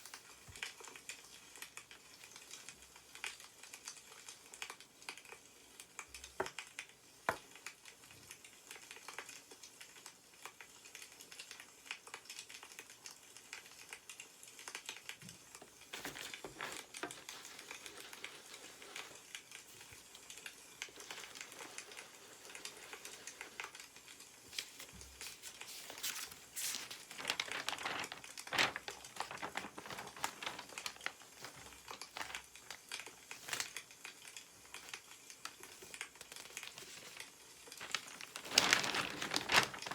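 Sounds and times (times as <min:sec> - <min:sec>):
firewood crackling: 0:14.4 - 0:39.9
newspaper rustling: 0:15.3 - 0:39.9.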